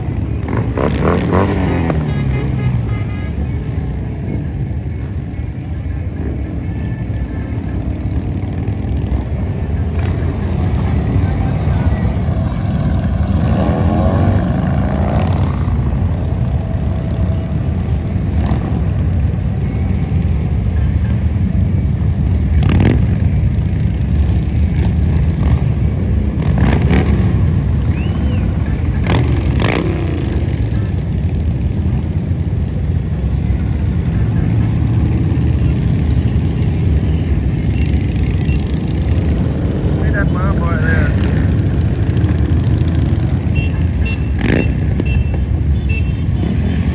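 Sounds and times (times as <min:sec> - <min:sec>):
motorcycle engines rumbling: 0:00.0 - 0:46.9.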